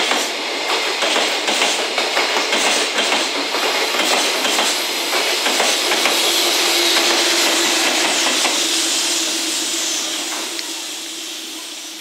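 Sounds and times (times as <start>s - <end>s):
rushing wheel and rail noise: 0.0s - 12.0s
locomotive hum: 3.3s - 12.0s.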